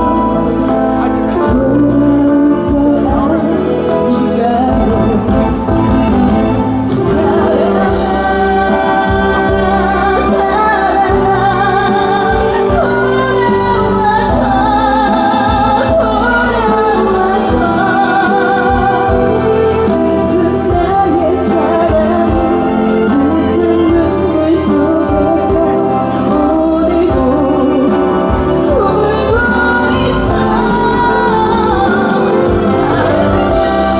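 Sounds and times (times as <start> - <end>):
band accompaniment with drums: 0.0 - 33.9
woman singing with vibrato: 0.0 - 33.9.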